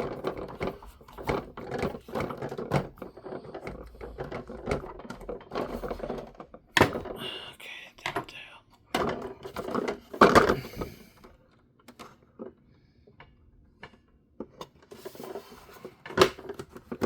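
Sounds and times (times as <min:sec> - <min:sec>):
knocks and scrapes: 0:00.0 - 0:07.2
plastic parts clicking and rattling: 0:00.0 - 0:07.3, 0:08.0 - 0:12.6, 0:13.8 - 0:17.0.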